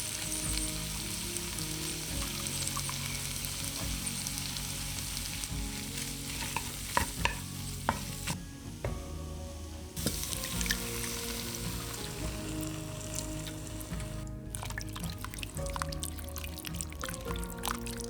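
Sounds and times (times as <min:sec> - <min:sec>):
food sizzling in a pan: 0:00.0 - 0:18.0
utensil knocking against pan: 0:06.3 - 0:09.1.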